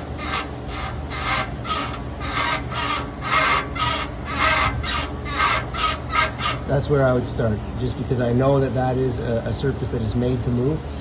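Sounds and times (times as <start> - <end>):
steel parts rasping scrape: 0.0 - 7.2.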